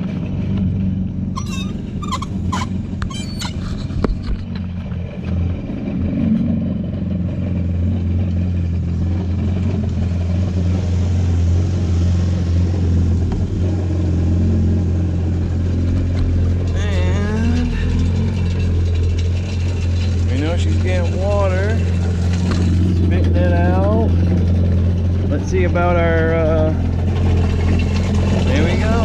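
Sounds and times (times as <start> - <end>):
jet ski engine idling: 0.0 - 29.0
sharp clicks and squeaks: 1.3 - 5.4, 16.0 - 23.2.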